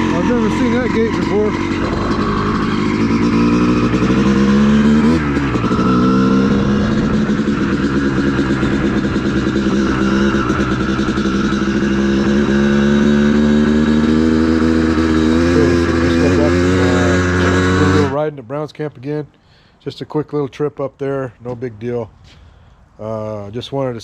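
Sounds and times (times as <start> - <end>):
dirt bike engine revving: 0.0 - 18.2.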